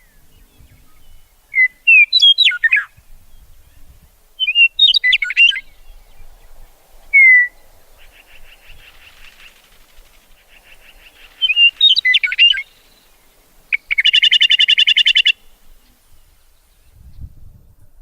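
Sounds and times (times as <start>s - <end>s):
rapid bird trill: 0.0s - 2.9s, 4.4s - 6.0s, 7.1s - 16.4s
songbirds singing: 0.0s - 17.9s.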